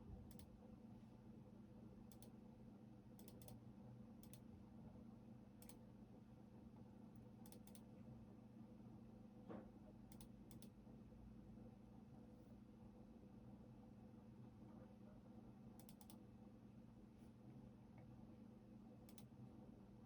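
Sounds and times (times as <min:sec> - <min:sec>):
computer keyboard keystrokes: 0:03.2 - 0:03.6, 0:07.5 - 0:07.9, 0:15.8 - 0:16.2.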